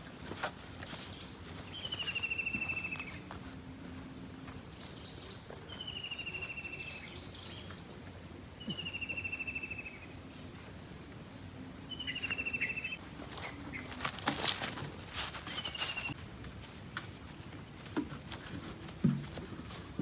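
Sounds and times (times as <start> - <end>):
insects high-pitched whine: 0.9 - 16.2
insect chirping trill: 4.9 - 13.0.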